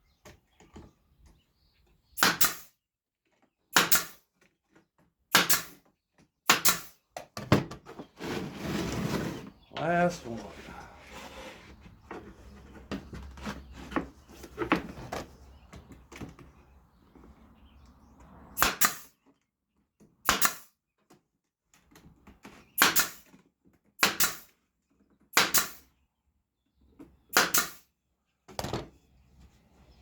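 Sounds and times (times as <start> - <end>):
pneumatic nailer firing: 2.2 - 2.7, 3.7 - 4.2, 5.3 - 5.8, 6.5 - 7.0, 18.6 - 19.1, 20.2 - 20.7, 22.8 - 23.3, 24.0 - 24.5, 25.3 - 25.8, 27.3 - 27.8.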